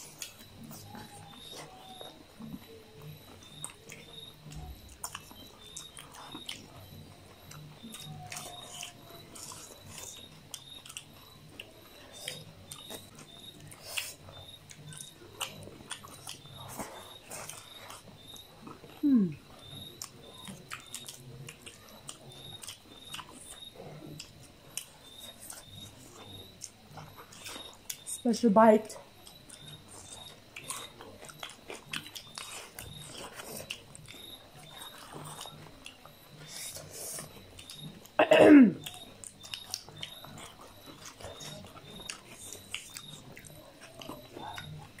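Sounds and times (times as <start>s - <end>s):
people chewing food: 0.0s - 45.0s.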